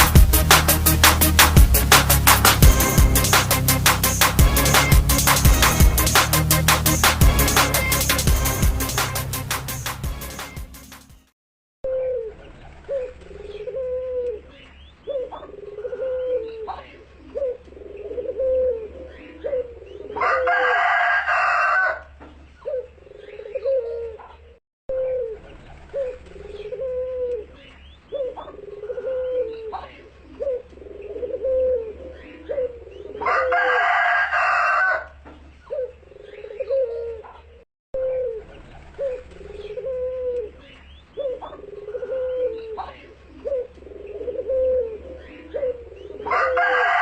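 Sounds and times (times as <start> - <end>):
dove cooing: 11.9 - 47.0.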